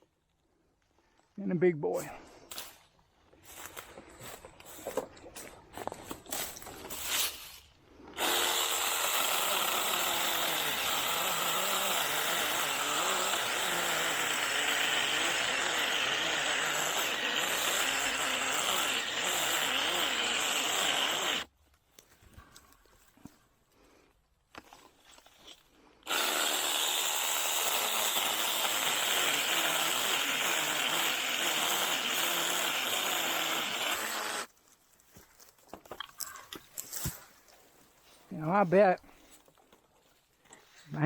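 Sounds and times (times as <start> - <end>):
rustling: 3.4 - 8.0
cordless chainsaw cutting wood: 8.1 - 21.5, 26.0 - 34.5.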